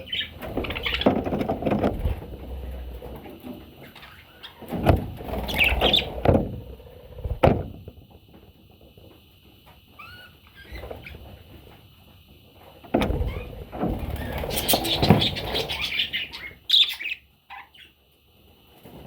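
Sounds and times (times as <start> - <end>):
parrot chicks chirping: 0.0 - 1.4, 2.4 - 4.7, 5.4 - 7.4, 9.9 - 11.3, 13.2 - 18.0
dull thumps: 0.4 - 3.2, 4.7 - 8.3, 12.8 - 15.6.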